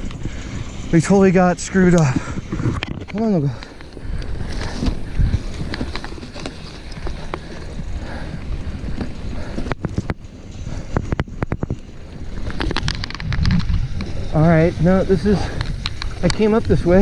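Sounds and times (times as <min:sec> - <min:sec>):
bike clicks and rattles: 0:00.0 - 0:17.0
bike tyres rumbling on dirt: 0:00.0 - 0:17.0
wind on microphone: 0:00.0 - 0:17.0.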